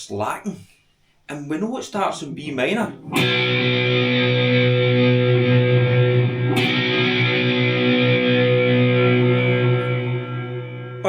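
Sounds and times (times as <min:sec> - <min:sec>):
electric guitar chord ringing: 0:03.0 - 0:11.0.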